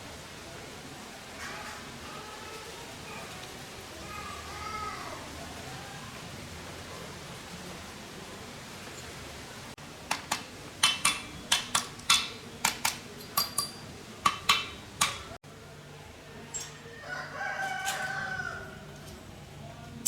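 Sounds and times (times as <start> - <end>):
rooster crowing: 16.3 - 19.0.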